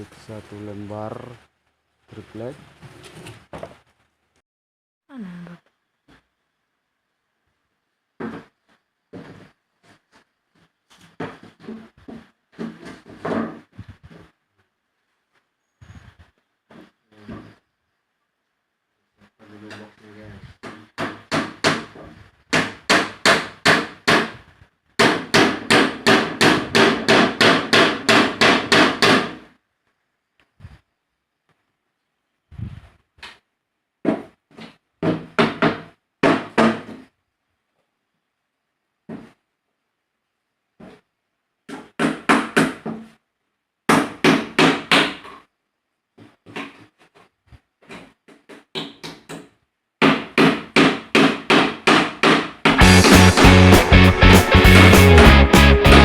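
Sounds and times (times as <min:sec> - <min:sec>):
hammer striking plywood: 0:21.0 - 0:24.4, 0:25.0 - 0:29.4, 0:50.0 - 0:55.6.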